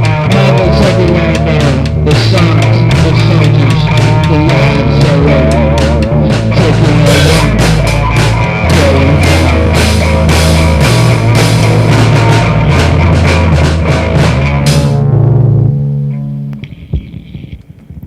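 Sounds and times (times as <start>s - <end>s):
rock band playing: 0.0s - 16.6s.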